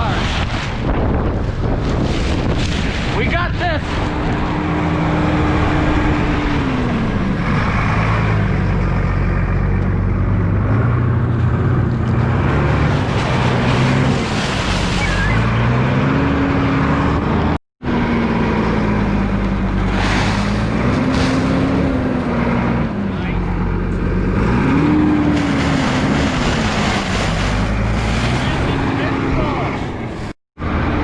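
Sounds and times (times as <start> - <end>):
wind on microphone: 0.0 - 8.0
engine running under load: 3.8 - 31.0.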